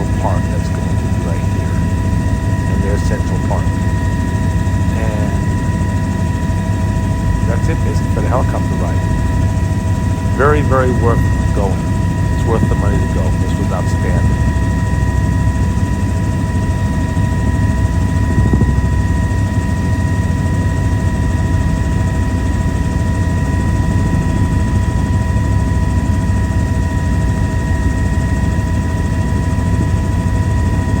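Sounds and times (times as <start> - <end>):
high whine: 0.0 - 17.2
helicopter engine and rotors drone: 0.0 - 31.0.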